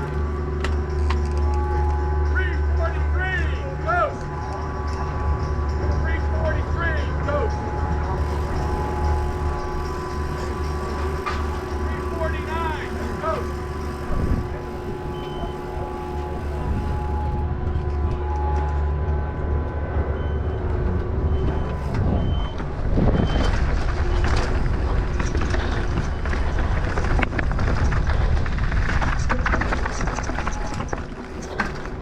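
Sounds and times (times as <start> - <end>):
bike tyres on dirt: 0.0 - 2.5, 3.9 - 18.9, 21.6 - 32.0
steady low hum: 0.0 - 23.2
wind noise: 4.1 - 32.0
clicks and rattles: 23.5 - 32.0.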